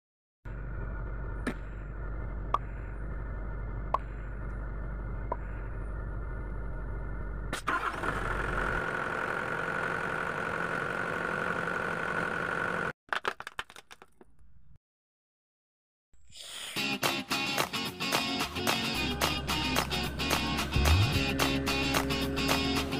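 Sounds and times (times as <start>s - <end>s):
excavator diesel engine: 0.5s - 12.9s, 18.6s - 22.9s.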